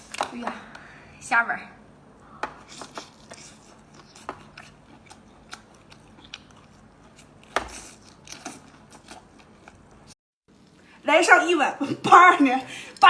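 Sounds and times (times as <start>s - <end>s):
chewing crayfish: 2.6s - 10.2s.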